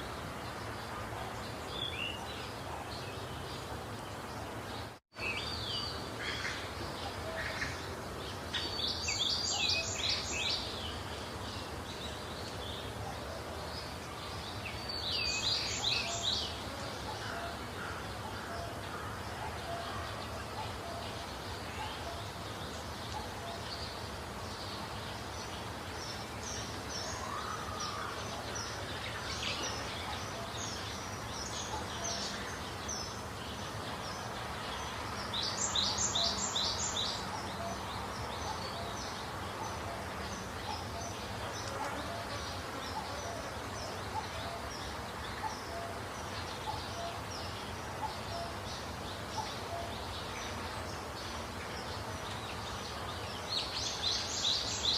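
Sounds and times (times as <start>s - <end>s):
songbirds chirping: 0.0s - 54.9s.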